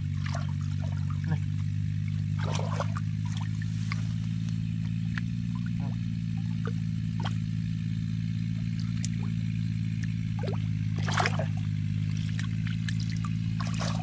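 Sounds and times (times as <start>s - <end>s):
low motor drone: 0.0s - 14.0s
short splashes: 0.0s - 14.0s.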